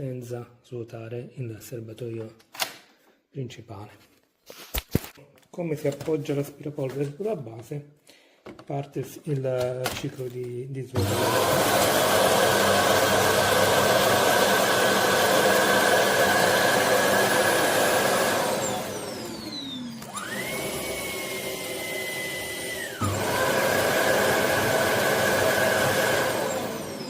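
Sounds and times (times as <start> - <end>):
suction motor running: 11.0 - 27.0
small motor whining: 17.9 - 27.0.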